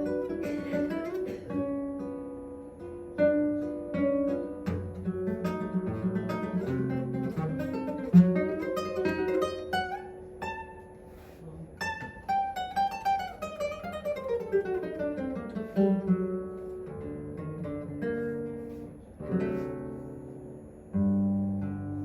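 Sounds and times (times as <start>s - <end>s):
classical guitar playing: 0.0s - 22.0s.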